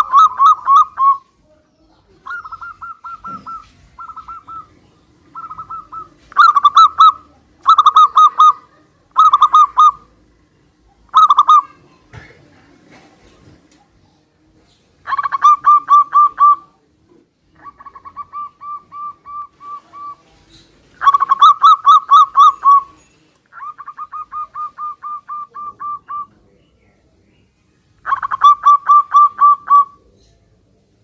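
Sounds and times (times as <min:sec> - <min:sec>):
doves cooing: 0:00.0 - 0:01.3, 0:02.0 - 0:11.8, 0:15.0 - 0:26.5, 0:28.0 - 0:30.4.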